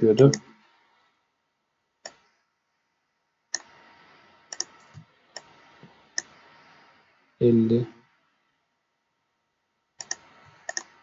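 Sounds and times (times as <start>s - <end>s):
computer mouse clicking: 3.6s - 3.8s, 4.5s - 5.6s, 6.2s - 6.4s, 10.0s - 11.0s.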